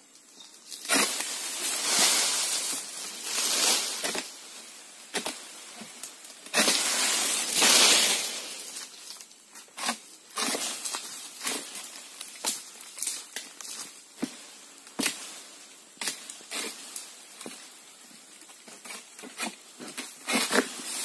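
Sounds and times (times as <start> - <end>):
palm fronds rustling and scraping: 0.0 - 21.0.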